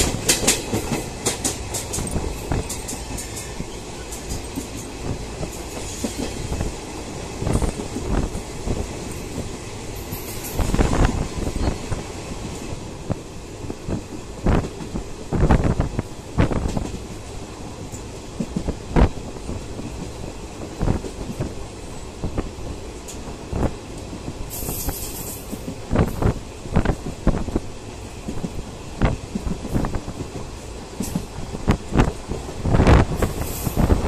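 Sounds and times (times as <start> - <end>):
wheels clacking over rail joints: 0.0 - 12.8
goods train clattering past: 0.0 - 34.0
train wheels rumbling on rail: 0.0 - 34.0
brief hiss: 24.5 - 25.5.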